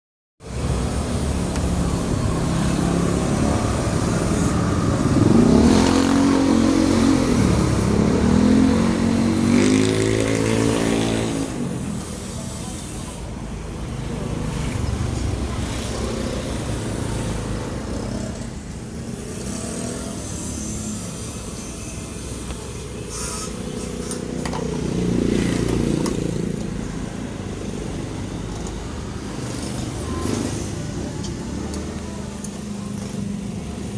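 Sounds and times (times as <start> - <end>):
vehicle engine revving: 0.6 - 12.8.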